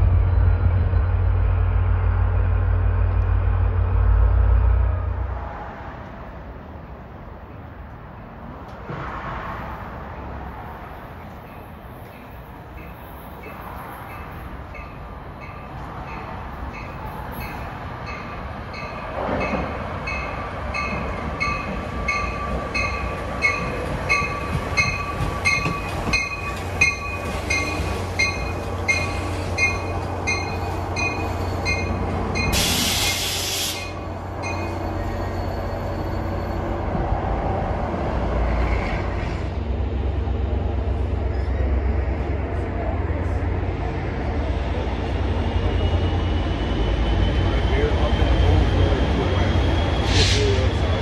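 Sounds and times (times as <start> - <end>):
low engine drone: 0.0 - 5.4
train bell ringing rapidly: 20.1 - 32.6
sharp air hiss: 32.5 - 34.0.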